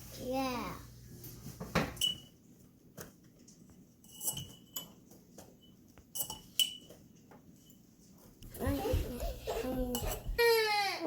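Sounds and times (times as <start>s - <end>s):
paint cups clinking: 3.5s - 7.8s, 9.4s - 10.4s.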